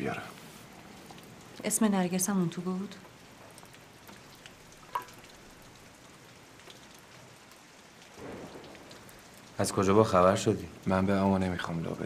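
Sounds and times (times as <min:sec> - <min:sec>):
faint rain patter: 0:00.0 - 0:12.0
light drips: 0:00.0 - 0:12.0.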